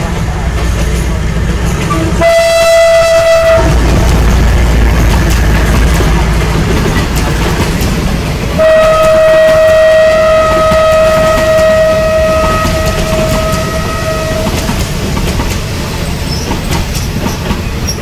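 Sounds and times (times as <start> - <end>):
train coaches rumbling past: 0.0 - 18.0
train horn: 1.9 - 4.0, 8.6 - 14.9.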